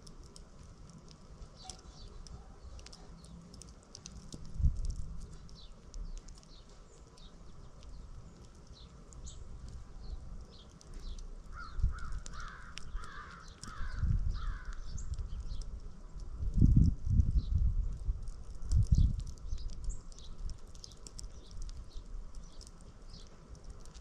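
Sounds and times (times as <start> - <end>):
small birds chirping: 0.0 - 24.0
low thumps and rumbles: 4.2 - 6.2
harsh crow-like calls: 11.5 - 15.0.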